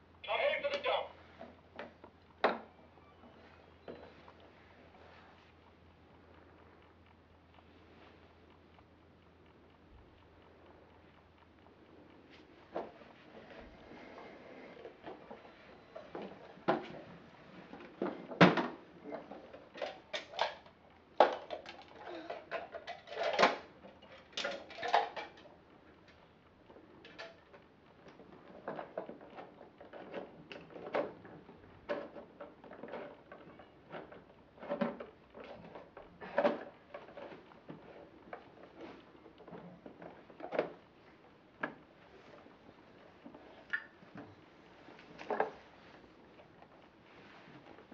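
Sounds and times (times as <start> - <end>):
plastic toys clacking and rattling: 17.6 - 25.5.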